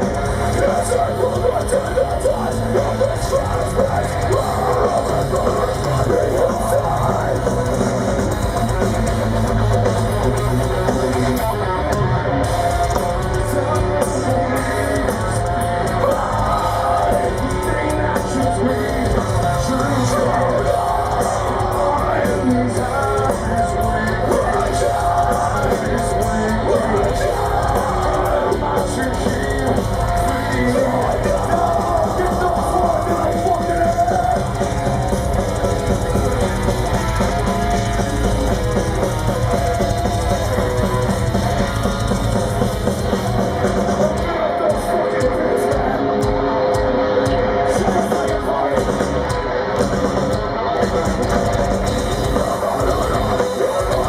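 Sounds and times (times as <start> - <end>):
distorted electric guitars: 0.0 - 54.0
drum kit: 0.0 - 54.0.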